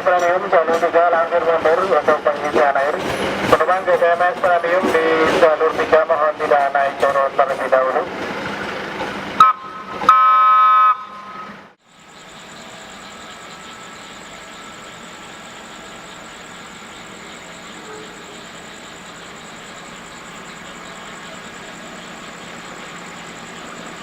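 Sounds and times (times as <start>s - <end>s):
locomotive horn: 9.4s - 11.7s.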